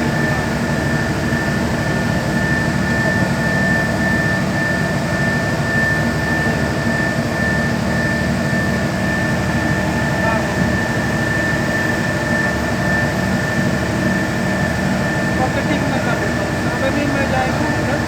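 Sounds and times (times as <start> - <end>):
constant high whine: 0.0 - 18.0.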